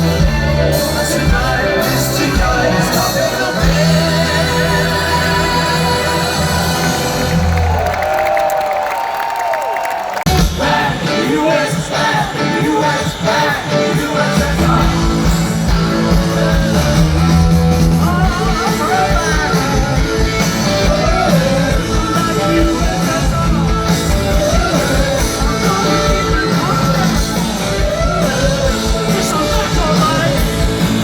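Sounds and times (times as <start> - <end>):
person singing: 0.0 - 7.6, 10.3 - 31.0
live rock band playing: 0.0 - 8.4, 10.3 - 31.0.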